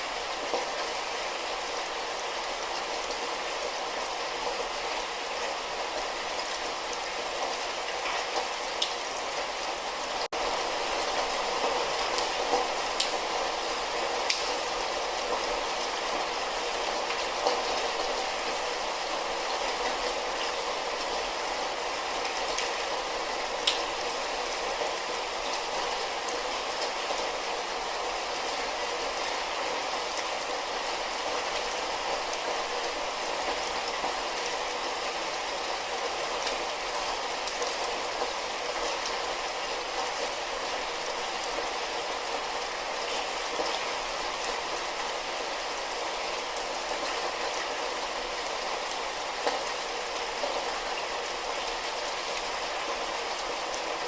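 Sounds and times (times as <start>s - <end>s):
light rain falling: 0.0s - 54.0s
raindrops ticking: 12.2s - 13.3s.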